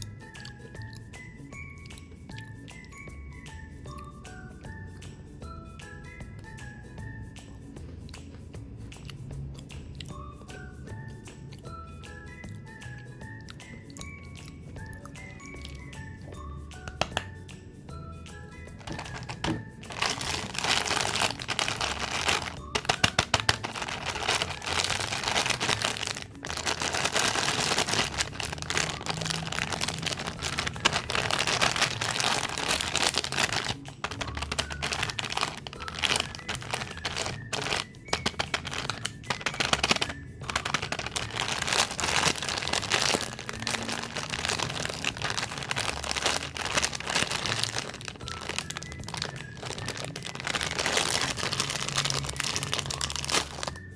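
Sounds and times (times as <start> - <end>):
plastic wrappers crinkling: 16.9 - 17.3, 18.8 - 53.9.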